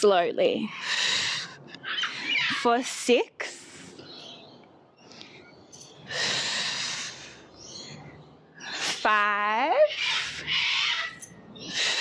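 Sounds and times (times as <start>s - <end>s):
woman speaking: 0.0s - 0.8s, 2.5s - 3.8s, 8.9s - 10.0s
woman breathing heavily: 0.7s - 2.4s, 5.0s - 7.9s, 11.5s - 12.0s.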